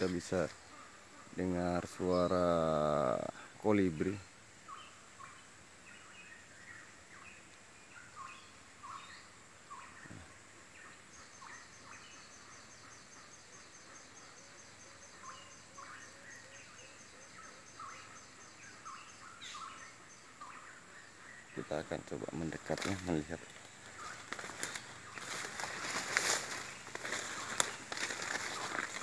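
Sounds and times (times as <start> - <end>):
forest birds calling: 0.0 - 29.0
high insect trill: 11.1 - 29.0.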